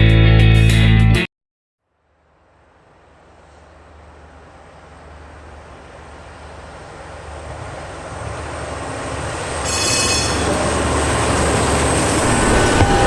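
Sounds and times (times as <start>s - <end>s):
train rumbling: 2.5s - 13.0s
high-pitched wheel squeal: 9.5s - 13.0s.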